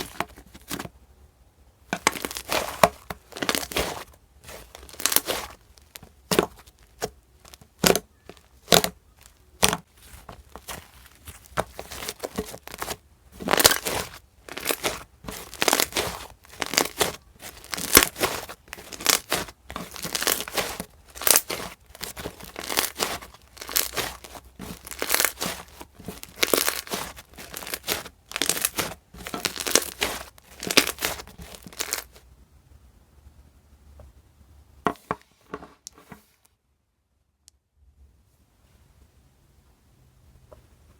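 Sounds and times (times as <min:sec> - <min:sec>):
slime crackling and popping: 0:02.0 - 0:32.2.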